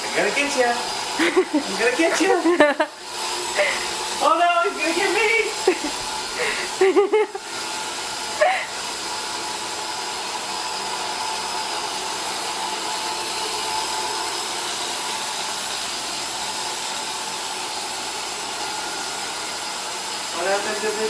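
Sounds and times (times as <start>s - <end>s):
robot vacuum whirring: 0.0s - 21.0s.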